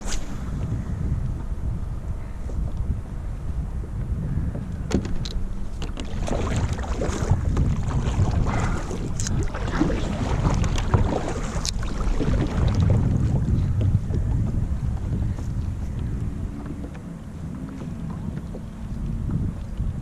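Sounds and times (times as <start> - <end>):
wind buffeting microphone: 0.0 - 20.0
water splashing against kayak: 4.8 - 20.0.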